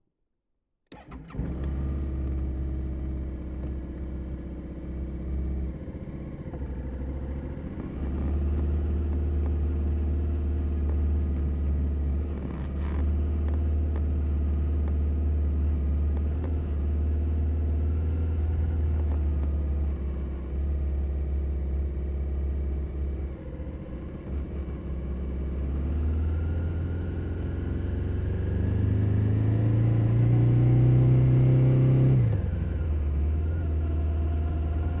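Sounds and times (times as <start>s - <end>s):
motorcycle engine running: 1.3s - 29.0s.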